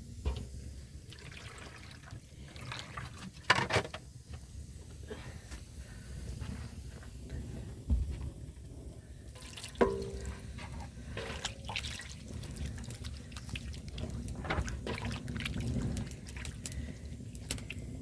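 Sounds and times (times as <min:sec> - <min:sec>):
water dripping and trickling: 0:01.1 - 0:03.5, 0:09.4 - 0:17.8
dull thump: 0:07.9 - 0:08.3.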